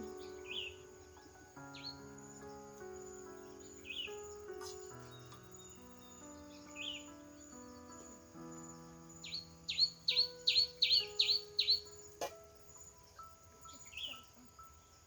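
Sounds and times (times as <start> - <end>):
high insect drone: 0.0 - 15.0
soft background music: 0.0 - 15.0
bird calling sharp downward notes: 9.7 - 12.4.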